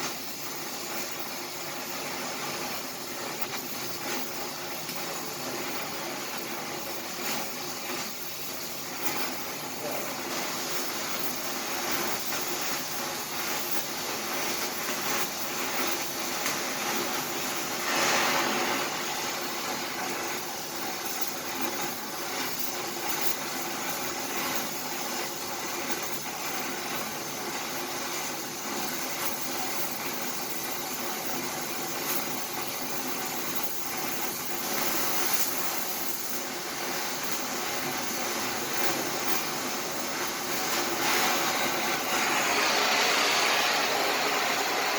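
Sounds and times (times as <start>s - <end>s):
welding arc crackling: 0.0s - 44.9s.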